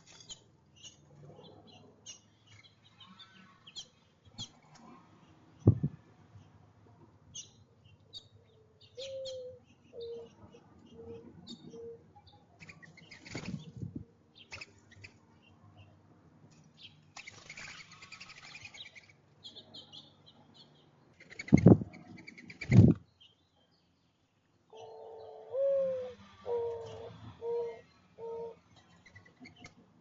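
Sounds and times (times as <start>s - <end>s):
bird wings flapping: 13.2s - 13.9s, 22.6s - 23.0s.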